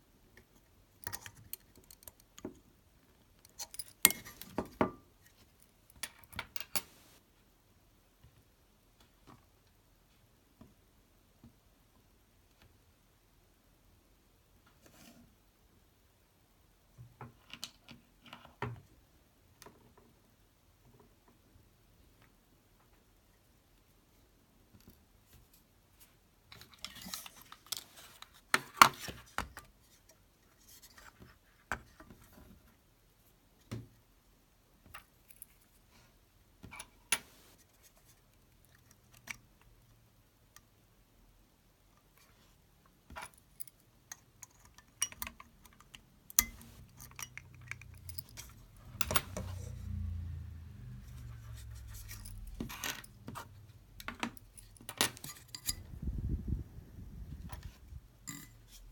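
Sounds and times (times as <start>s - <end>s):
metal parts and tools clinking: 44.4s - 49.8s, 54.0s - 55.9s, 58.2s - 58.9s.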